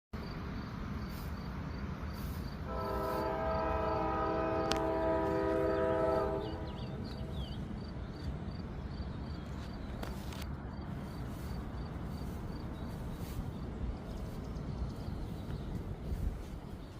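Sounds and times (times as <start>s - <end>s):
long horn blast: 2.6s - 7.3s.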